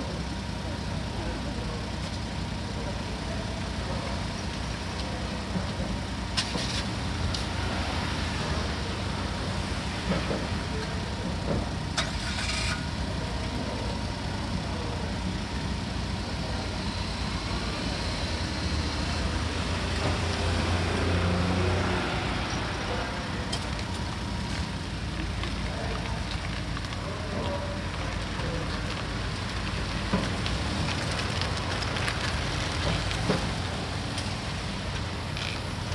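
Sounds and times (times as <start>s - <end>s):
engine rumble: 0.0s - 35.9s.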